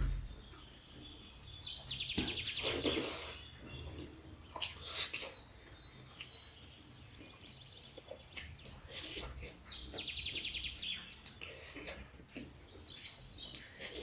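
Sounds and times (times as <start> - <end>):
mouth clicks: 0.0 - 0.4
bird chirps: 0.0 - 8.3
close chewing sounds: 0.0 - 14.0.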